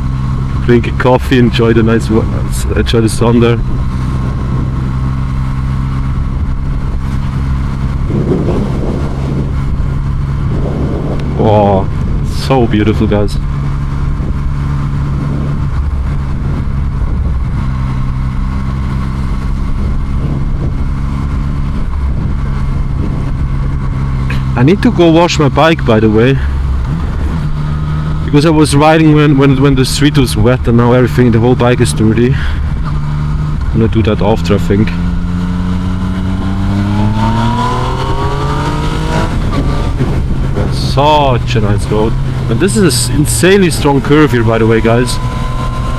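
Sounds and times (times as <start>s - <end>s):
motorcycle engine cruising: 0.0s - 45.9s
road noise: 0.0s - 45.9s
wind rushing: 1.4s - 12.7s, 34.8s - 45.9s.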